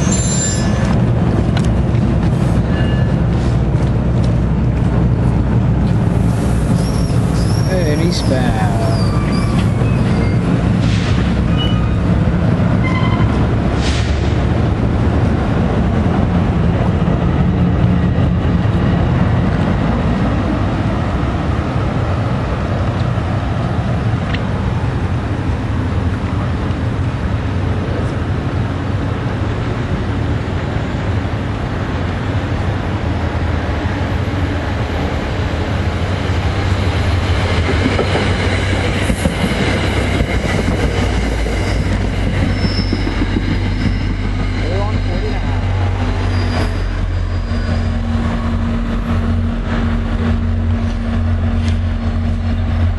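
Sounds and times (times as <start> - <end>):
high wheel squeal: 0.0 - 1.0, 2.6 - 3.2, 6.7 - 12.1, 41.5 - 48.6
train rumbling past: 0.0 - 52.9.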